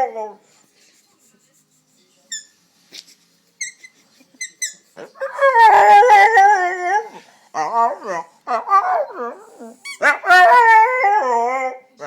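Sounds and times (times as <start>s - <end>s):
dog whining: 5.1s - 11.8s
dog howling: 5.2s - 11.9s.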